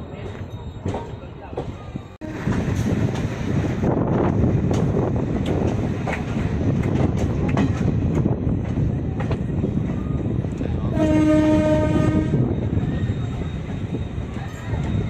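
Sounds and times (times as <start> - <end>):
train wheels rumbling on rail: 0.0 - 15.0
locomotive horn blast: 2.2 - 2.6, 10.9 - 12.6.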